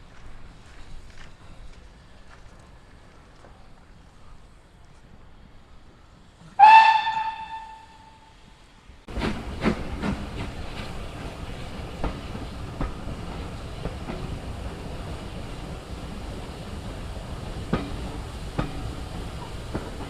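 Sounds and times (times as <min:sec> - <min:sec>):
steam train running: 0:00.0 - 0:20.0
steam locomotive whistle blast: 0:06.6 - 0:08.5.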